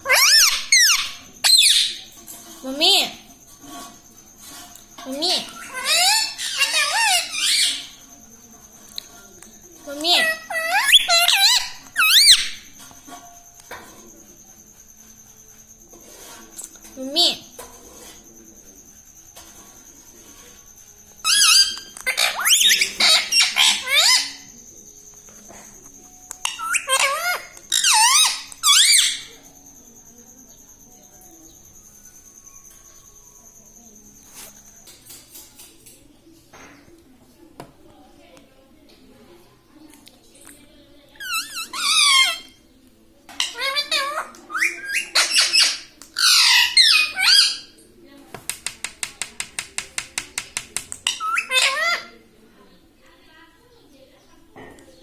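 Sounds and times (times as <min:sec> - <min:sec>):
parakeet squawking: 0:00.0 - 0:02.1, 0:05.2 - 0:08.0, 0:10.0 - 0:12.7, 0:21.2 - 0:24.6, 0:26.4 - 0:29.4, 0:41.2 - 0:42.6, 0:43.4 - 0:47.7, 0:51.0 - 0:52.2.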